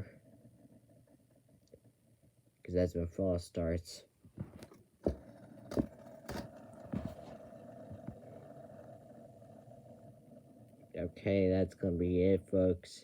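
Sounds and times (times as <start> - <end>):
small motor humming: 5.0 - 11.3.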